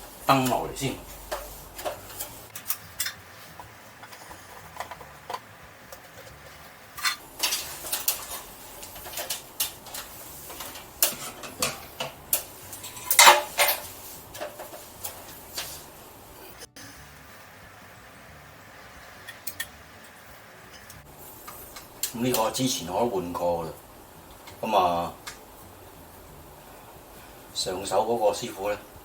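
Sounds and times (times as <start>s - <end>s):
plastic and metal parts clattering: 7.0s - 14.9s.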